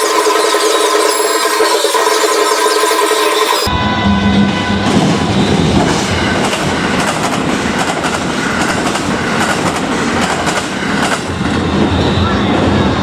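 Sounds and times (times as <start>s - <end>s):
train rumble: 0.1s - 13.0s.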